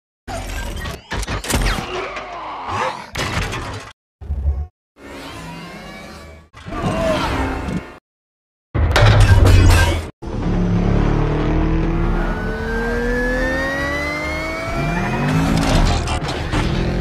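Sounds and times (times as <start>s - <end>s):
car engine accelerating: 10.2s - 17.0s
engine rev: 10.2s - 17.0s.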